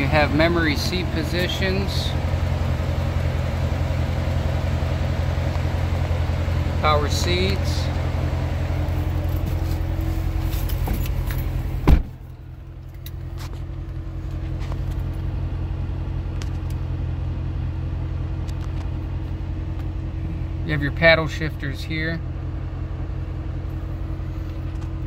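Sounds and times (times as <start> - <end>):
car engine idling: 0.0 - 25.0
car door shutting: 9.3 - 12.3.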